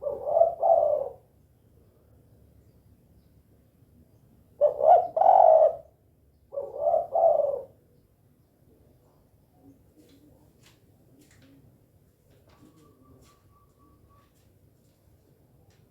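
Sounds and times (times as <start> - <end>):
dove cooing: 0.0 - 1.3, 4.6 - 7.8.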